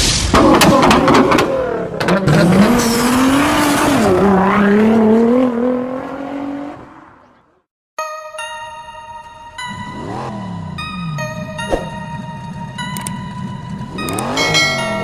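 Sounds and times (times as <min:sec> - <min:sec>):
car engine revving hard: 0:01.0 - 0:06.9.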